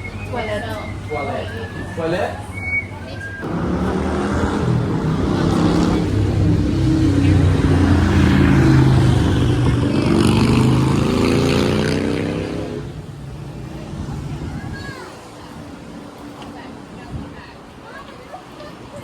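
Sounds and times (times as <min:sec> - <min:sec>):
vehicle engine accelerating: 0:03.4 - 0:14.9.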